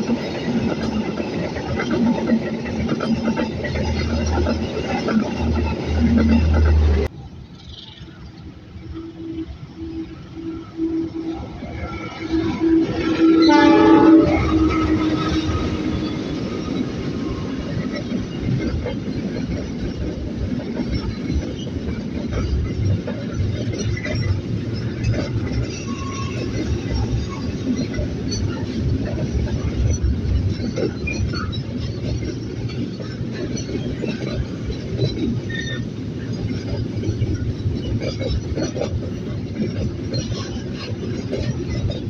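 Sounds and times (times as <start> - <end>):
train wheels rumbling and rattling: 0.0 - 42.0
train horn: 9.0 - 16.4.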